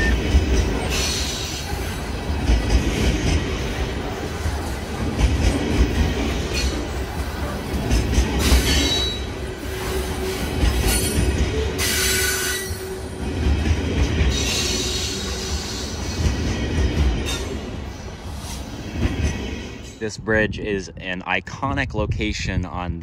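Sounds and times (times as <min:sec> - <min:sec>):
train wheels rolling on rails: 0:00.0 - 0:20.2
high-pitched wheel squeal: 0:08.7 - 0:13.1.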